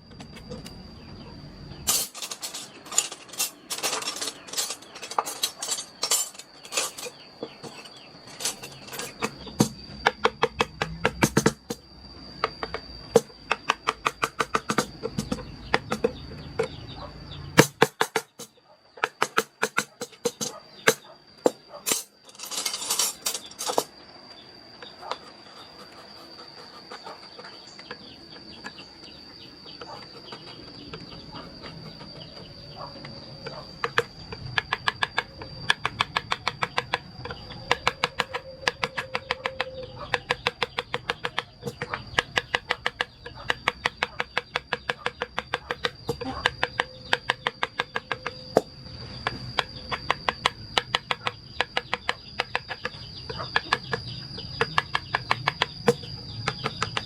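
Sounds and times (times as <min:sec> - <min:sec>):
mallet striking chisel into wood: 0:09.2 - 0:11.8, 0:12.5 - 0:16.8, 0:17.6 - 0:18.4, 0:19.0 - 0:21.0, 0:33.8 - 0:57.0
chisel blade scraping: 0:25.0 - 0:32.6.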